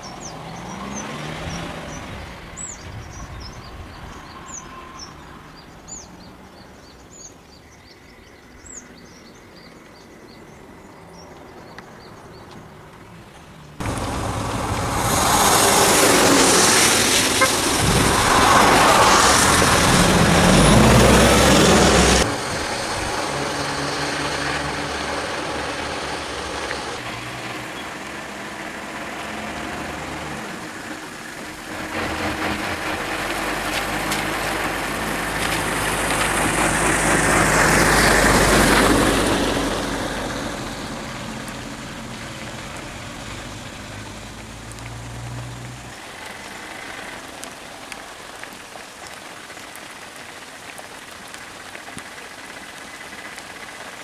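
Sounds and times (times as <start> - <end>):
engine and road noise: 0.0 - 54.0
low engine hum: 12.0 - 48.4.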